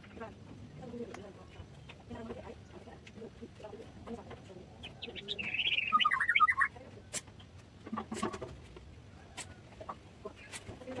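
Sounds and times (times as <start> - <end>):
small bird singing chirps: 4.7 - 6.8.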